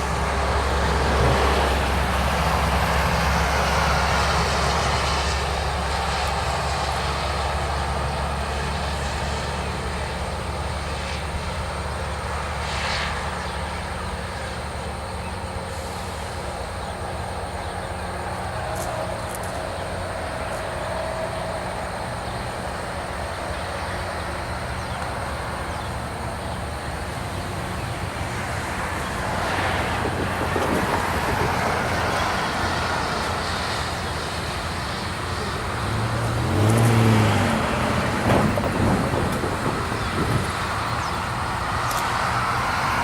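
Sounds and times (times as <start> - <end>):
low diesel drone: 0.0 - 43.0
rushing grinding noise: 24.4 - 43.0.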